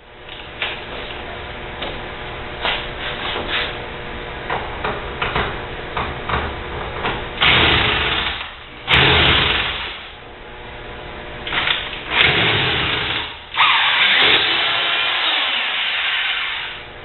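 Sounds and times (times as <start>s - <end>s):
small power tool motor: 12.1s - 16.8s.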